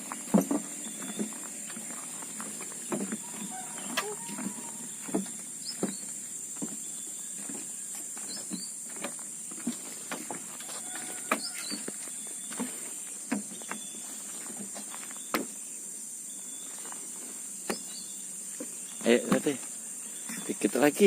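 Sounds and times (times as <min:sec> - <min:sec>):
footsteps and scuffs on path: 0:00.0 - 0:15.6.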